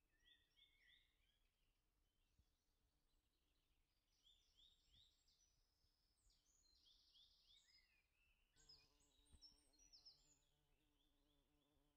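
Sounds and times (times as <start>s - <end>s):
small birds chirping: 6.2s - 11.8s.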